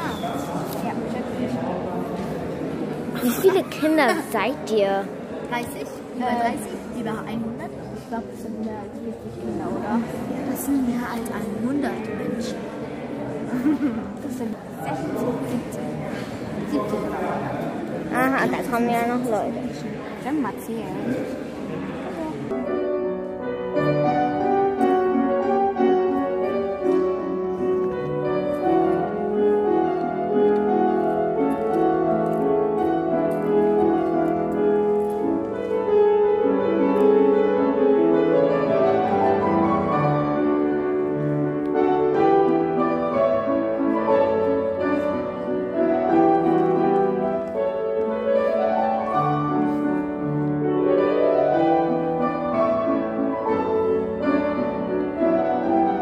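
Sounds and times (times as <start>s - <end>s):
piano music: 22.5s - 56.0s.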